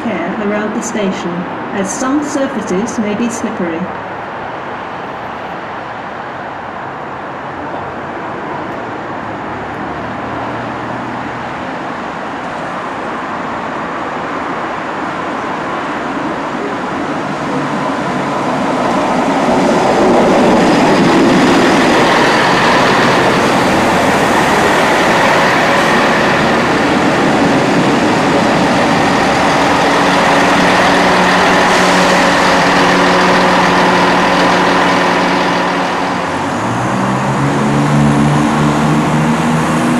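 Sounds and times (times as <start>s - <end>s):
train approaching: 0.0s - 39.9s
steady engine note: 17.2s - 39.9s.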